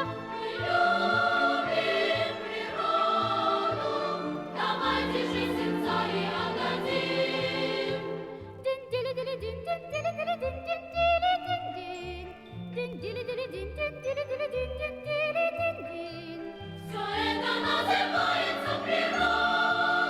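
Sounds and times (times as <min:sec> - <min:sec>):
choir singing with vibrato: 0:00.0 - 0:08.6, 0:16.8 - 0:20.0
musical accompaniment: 0:00.0 - 0:20.0.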